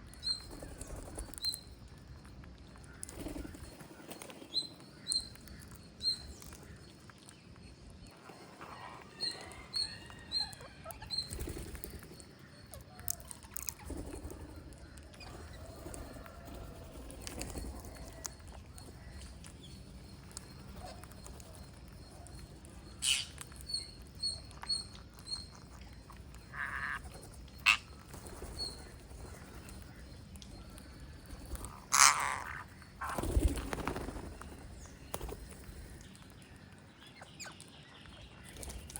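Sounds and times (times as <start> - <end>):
parrots chirping: 23.0 - 25.7, 31.5 - 33.2.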